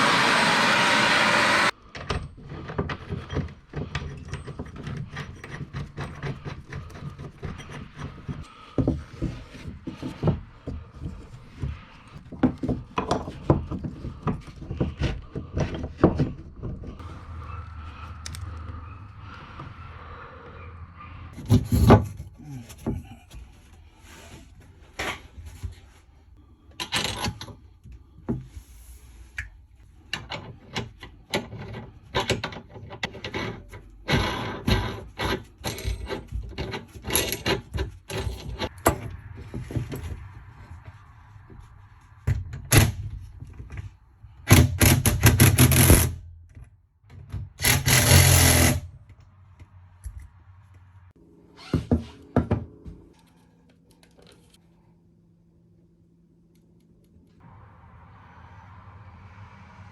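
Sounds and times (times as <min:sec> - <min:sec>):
loud noisy bursts: 0:00.0 - 0:01.7
wood knocking and scraping: 0:02.0 - 0:17.3.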